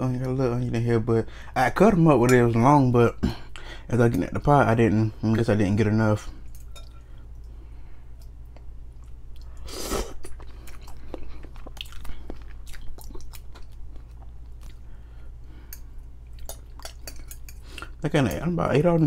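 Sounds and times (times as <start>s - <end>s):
person chewing noodles: 6.5s - 18.0s.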